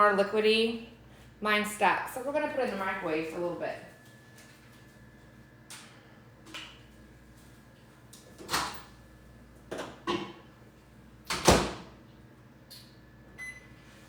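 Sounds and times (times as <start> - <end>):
microwave door opening and shutting: 11.3 - 11.9.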